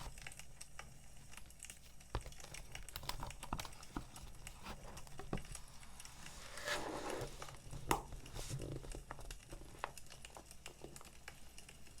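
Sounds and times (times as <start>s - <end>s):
packaging crinkling: 0.0s - 12.0s
wood fire crackling: 7.4s - 12.0s.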